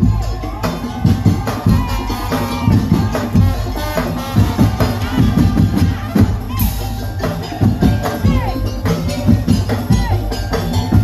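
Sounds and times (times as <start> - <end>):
wooden slit drums and drums beating: 0.0 - 11.0.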